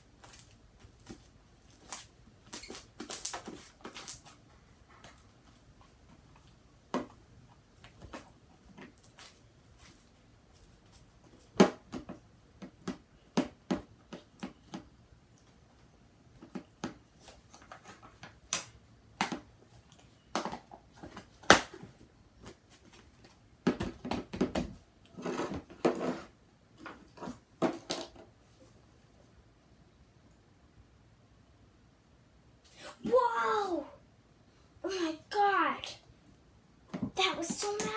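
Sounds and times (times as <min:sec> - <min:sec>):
scraping and rustling: 0:25.1 - 0:27.9.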